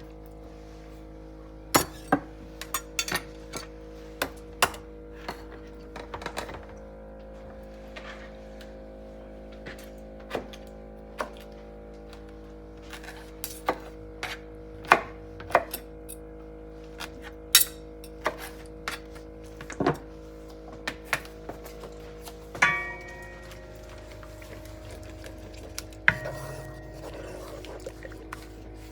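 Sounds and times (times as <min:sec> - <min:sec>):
steady low hum: 0:06.8 - 0:28.9
ringing clink of dishes: 0:22.6 - 0:27.5.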